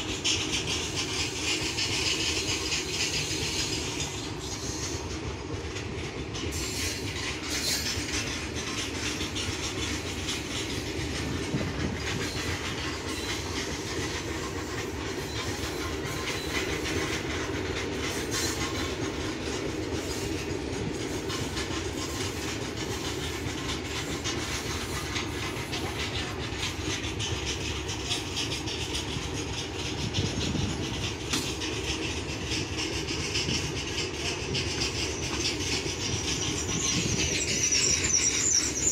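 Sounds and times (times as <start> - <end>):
freight train wheels clattering: 0.0 - 38.9.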